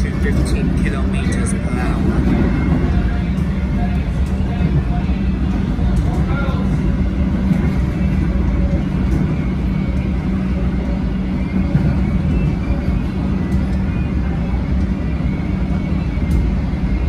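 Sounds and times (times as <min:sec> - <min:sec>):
constant low hum: 0:00.0 - 0:17.0
train wheels rumbling on track: 0:00.0 - 0:17.0.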